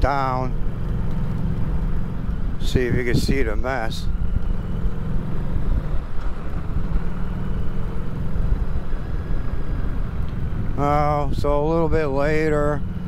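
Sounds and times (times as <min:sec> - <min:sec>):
motorcycle engine running: 0:00.0 - 0:13.0
tyre noise on grooved asphalt: 0:00.4 - 0:02.7, 0:04.0 - 0:10.8.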